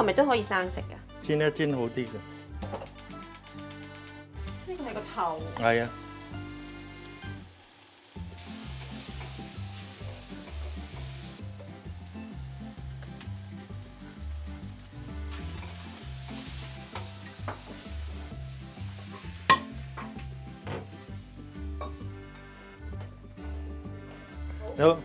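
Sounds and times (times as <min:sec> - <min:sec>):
octopus sizzling in hot oil: 0:04.4 - 0:23.1.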